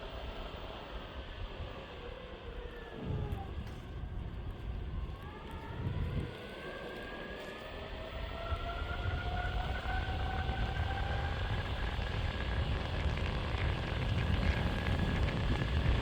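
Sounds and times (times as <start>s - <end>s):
wheels rumbling on road: 0.0s - 16.0s
wind: 0.0s - 16.0s
electric skateboard motors whining: 8.2s - 16.0s.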